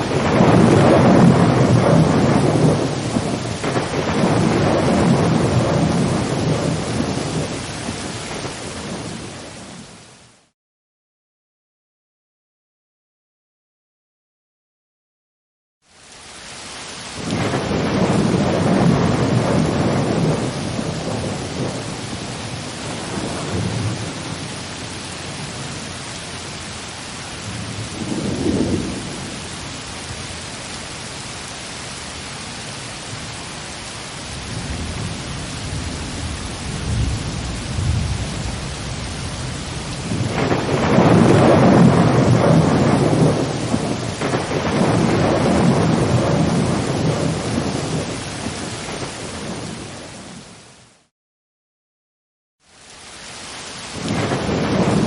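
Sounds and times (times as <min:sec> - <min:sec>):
rolling thunder: 0:00.0 - 0:09.8, 0:17.1 - 0:25.9, 0:27.4 - 0:30.2, 0:34.3 - 0:50.4, 0:53.9 - 0:55.0
rain hiss: 0:00.0 - 0:10.5, 0:15.8 - 0:51.1, 0:52.6 - 0:55.0.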